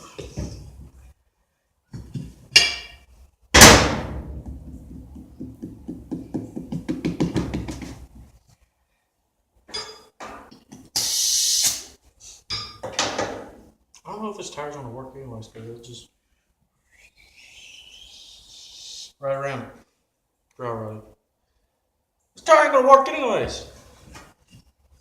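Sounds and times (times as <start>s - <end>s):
loud clattering hit: 3.6s - 4.7s
knocks: 3.6s - 8.1s
short hiss: 11.0s - 12.4s.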